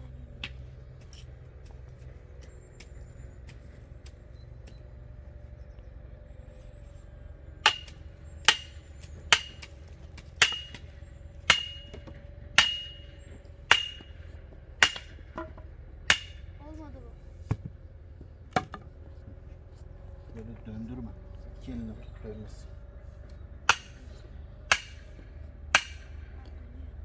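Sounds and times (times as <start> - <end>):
hammer striking metal: 7.6 - 9.7, 10.4 - 10.9, 11.5 - 15.4, 16.1 - 16.5, 23.7 - 24.1, 24.7 - 26.2.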